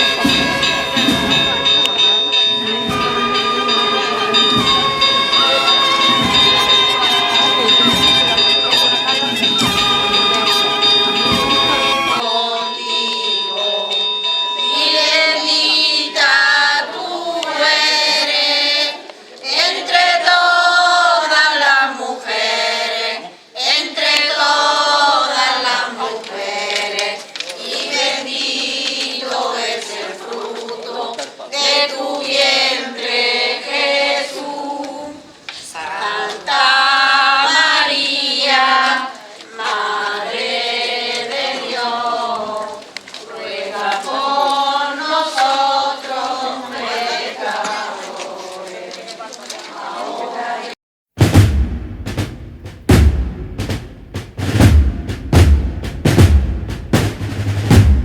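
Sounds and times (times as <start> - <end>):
bell-like ringing: 0.0 - 17.8
choir singing: 0.0 - 50.8.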